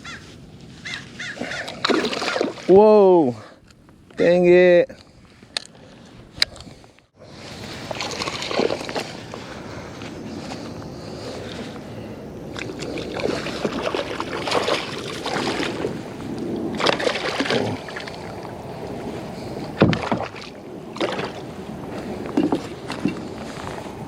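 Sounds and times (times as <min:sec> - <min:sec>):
water splashing: 0:01.4 - 0:02.9, 0:07.6 - 0:09.2, 0:12.5 - 0:21.6.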